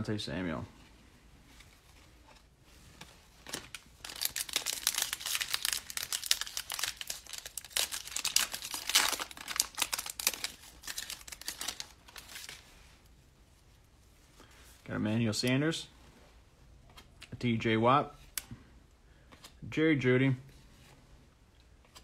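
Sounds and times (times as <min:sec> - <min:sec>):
foil wrapper tearing and crinkling: 0:03.4 - 0:12.6.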